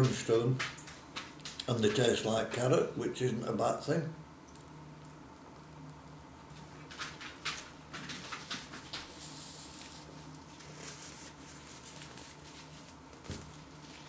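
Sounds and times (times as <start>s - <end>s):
paper napkin rustling: 6.7s - 14.0s.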